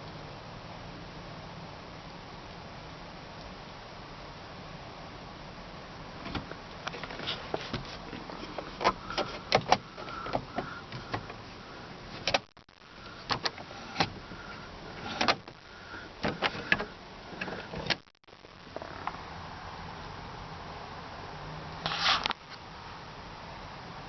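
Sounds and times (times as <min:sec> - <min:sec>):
sharp clicks and knocks in car cabin: 0:06.2 - 0:11.4, 0:12.1 - 0:12.6, 0:13.2 - 0:14.3, 0:15.0 - 0:15.6, 0:16.2 - 0:18.1.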